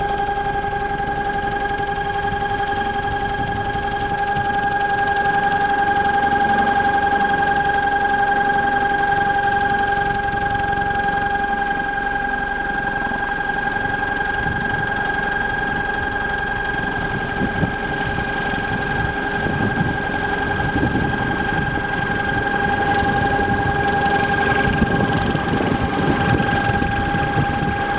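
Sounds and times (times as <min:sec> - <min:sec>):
electric motor whining: 0:03.1 - 0:11.2, 0:16.8 - 0:27.9.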